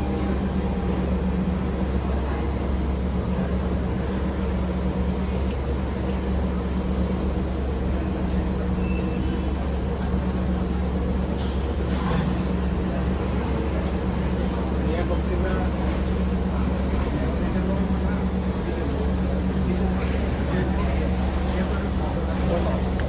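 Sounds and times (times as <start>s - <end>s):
train carriage hum: 0.0s - 23.0s.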